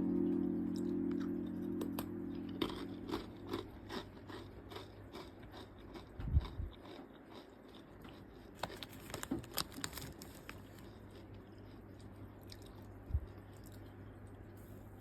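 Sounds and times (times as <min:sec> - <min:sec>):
person chewing crunchy snack: 0:01.9 - 0:13.9.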